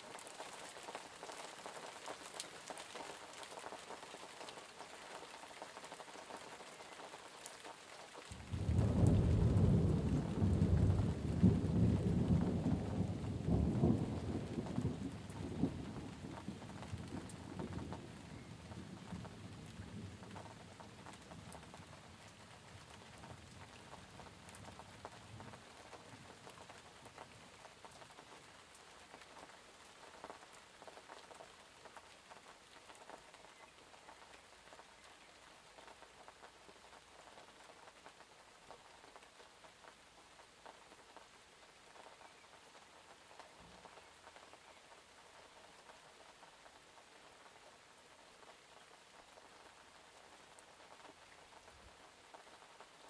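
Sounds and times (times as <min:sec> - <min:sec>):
rain pattering: 0:00.0 - 0:53.0
thunder rumble: 0:08.4 - 0:20.8.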